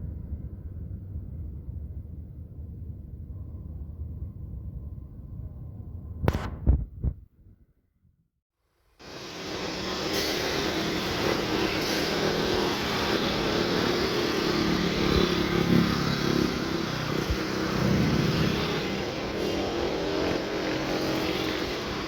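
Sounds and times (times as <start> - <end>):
locomotive diesel engine running: 9.0 - 22.0.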